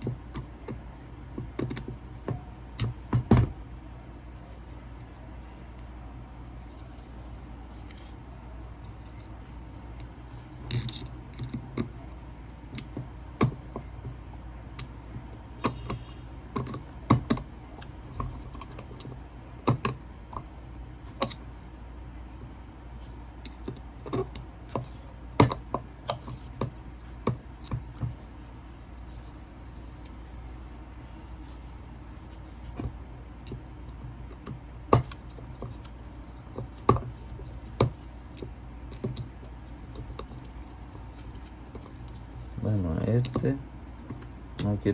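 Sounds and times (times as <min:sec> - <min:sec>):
tools and metal parts clicking: 0:08.8 - 0:11.9.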